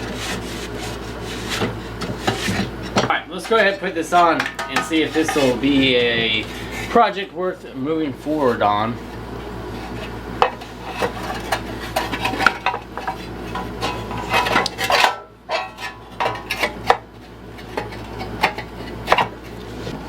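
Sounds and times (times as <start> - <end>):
metal parts clinking and scraping: 2.3 - 5.6, 10.6 - 16.9.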